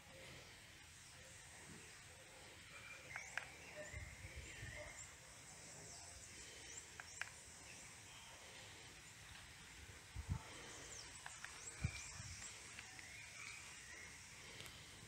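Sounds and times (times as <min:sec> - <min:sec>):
bird chirps: 0:02.7 - 0:08.3, 0:10.6 - 0:14.8
quick clicks: 0:03.1 - 0:03.6, 0:06.9 - 0:07.4, 0:11.2 - 0:13.4.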